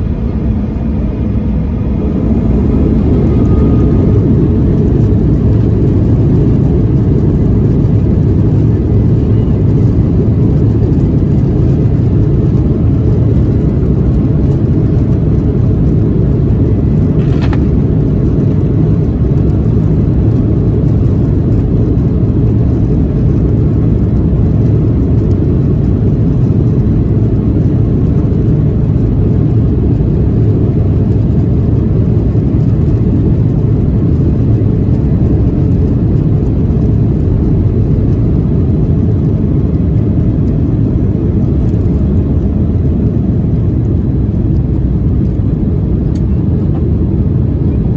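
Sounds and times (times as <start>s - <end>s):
airplane engines droning: 0.0s - 47.9s.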